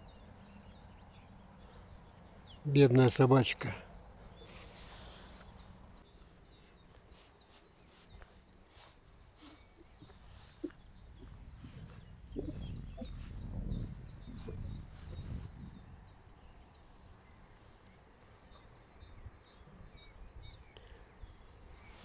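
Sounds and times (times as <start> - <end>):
songbirds chirping and trilling: 0.0 - 22.0
low rumbling noise: 10.6 - 16.3.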